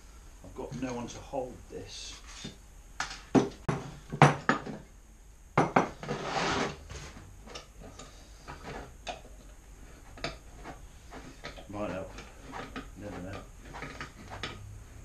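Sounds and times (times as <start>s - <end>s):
metal scraping rasp: 5.9s - 8.9s, 9.8s - 14.7s.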